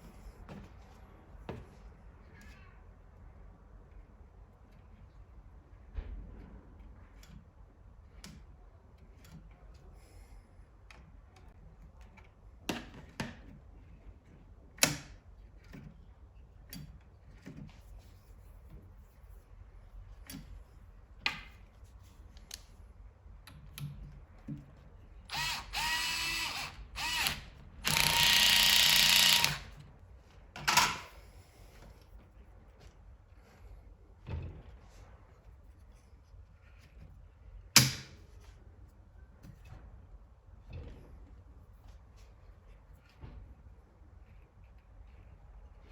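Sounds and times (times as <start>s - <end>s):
small electric motor whirring: 25.3s - 29.7s.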